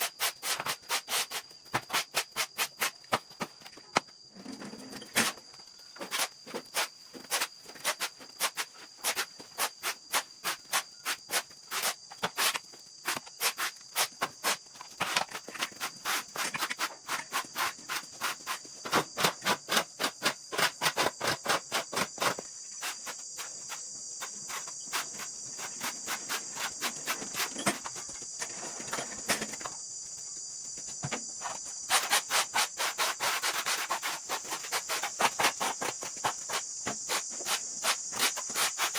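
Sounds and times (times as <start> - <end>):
high-pitched insect drone: 4.9 - 38.9
scrubbing a hard surface: 31.4 - 38.9.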